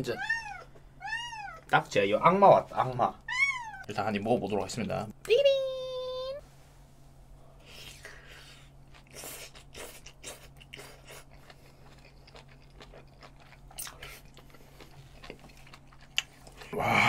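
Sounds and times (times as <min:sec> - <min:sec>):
wet chewing and crunching: 0:08.8 - 0:16.8.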